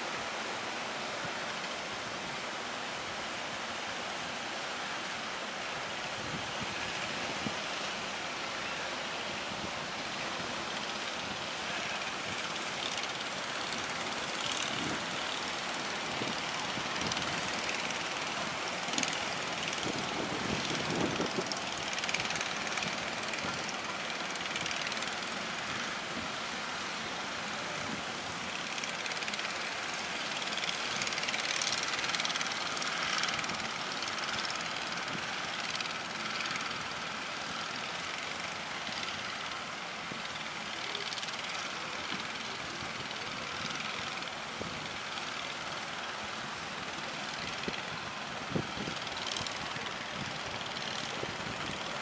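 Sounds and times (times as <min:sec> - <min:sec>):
sea waves: 0:00.0 - 0:52.0
strong wind: 0:06.0 - 0:07.7, 0:15.8 - 0:23.6, 0:47.6 - 0:52.0.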